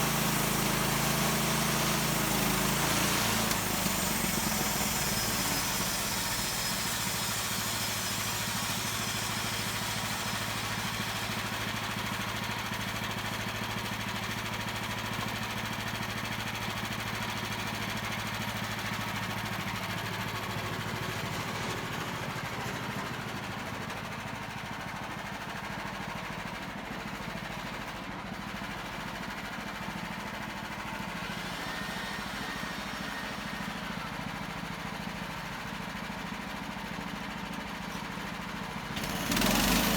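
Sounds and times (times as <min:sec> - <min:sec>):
sawmill engine running: 0:00.0 - 0:39.9
saw blade hissing through log: 0:00.2 - 0:11.5, 0:31.0 - 0:34.3.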